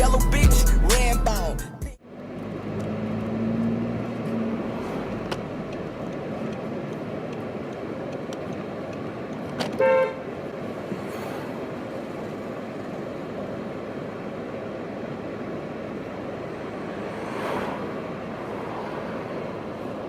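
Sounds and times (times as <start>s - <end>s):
street traffic: 0.0s - 20.0s
car horn toot: 9.6s - 10.4s.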